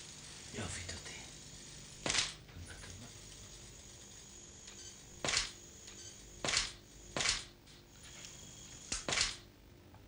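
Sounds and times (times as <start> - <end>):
camera shutter clicks: 5.2 - 5.6, 6.4 - 7.5, 8.9 - 9.4.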